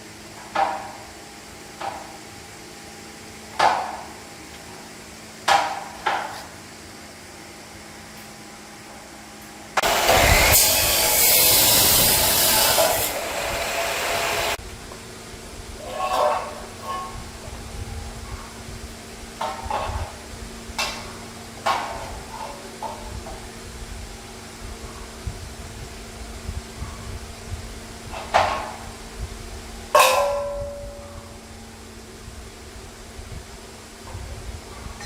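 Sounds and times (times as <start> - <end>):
harsh power tool noise: 9.8 - 14.6
sharp ringing knocks: 30.0 - 31.2.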